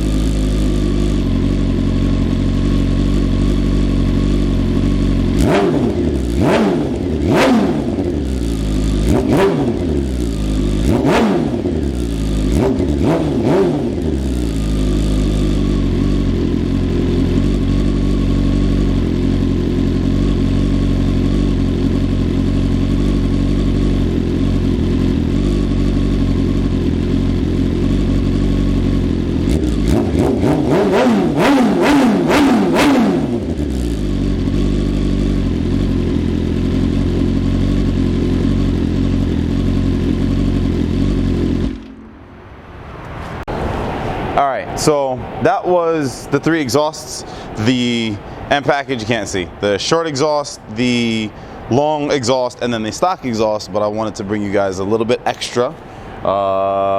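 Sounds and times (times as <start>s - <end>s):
motorcycle engine revving: 0.0s - 43.6s.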